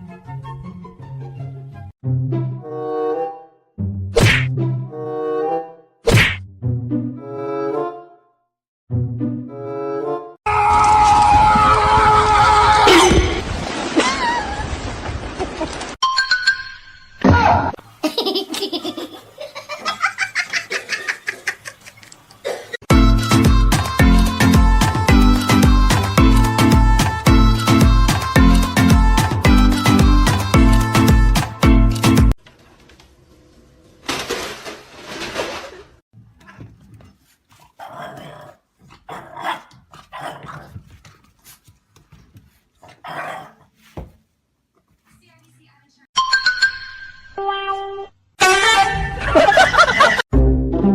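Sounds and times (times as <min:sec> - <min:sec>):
music with steady beat: 0:22.9 - 0:32.3.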